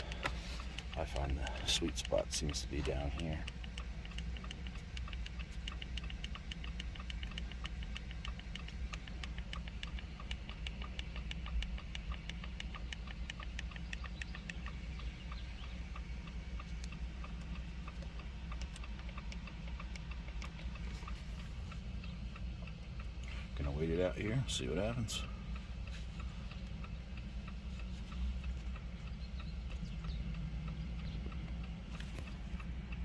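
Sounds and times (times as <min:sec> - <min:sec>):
car cabin low hum: 0:00.0 - 0:33.0
rapid ticking with faint tone: 0:00.0 - 0:33.0.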